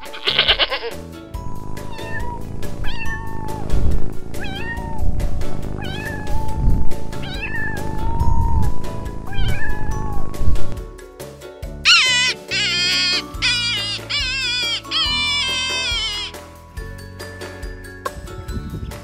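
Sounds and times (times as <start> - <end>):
cat meowing: 0.0 - 1.0, 1.8 - 5.2, 5.8 - 10.6, 11.9 - 16.4
background music with steady beat: 0.0 - 19.0.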